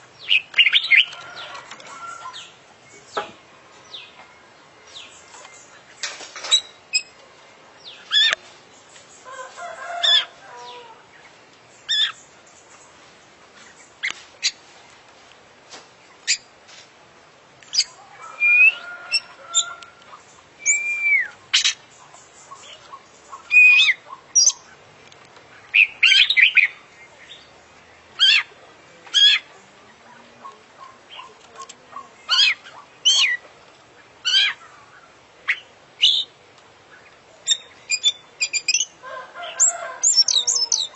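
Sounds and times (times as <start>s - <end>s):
scratchy bird chatter: 0.0s - 3.4s, 17.6s - 26.9s, 27.5s - 40.9s
bird singing whistled notes: 17.8s - 19.7s, 20.6s - 21.4s, 37.4s - 38.9s.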